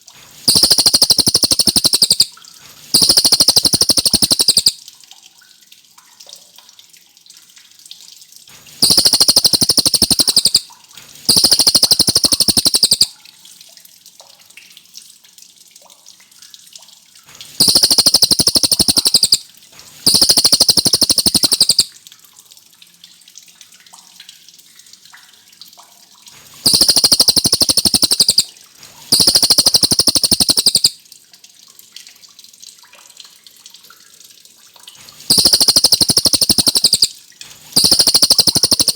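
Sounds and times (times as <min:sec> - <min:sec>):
songbird rapid rolling trills: 0:00.5 - 0:02.3, 0:03.0 - 0:04.8, 0:08.8 - 0:10.6, 0:11.3 - 0:13.1, 0:17.6 - 0:19.4, 0:20.1 - 0:21.9, 0:26.6 - 0:28.5, 0:29.1 - 0:30.9, 0:35.3 - 0:37.1, 0:37.8 - 0:38.9.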